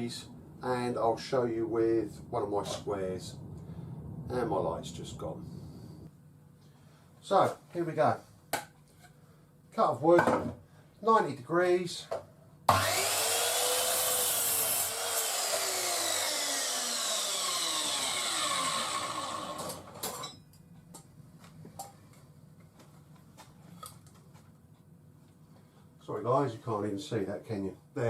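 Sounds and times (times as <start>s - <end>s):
mitre saw cutting wood: 12.7s - 20.2s
saw blade winding down: 12.7s - 20.3s.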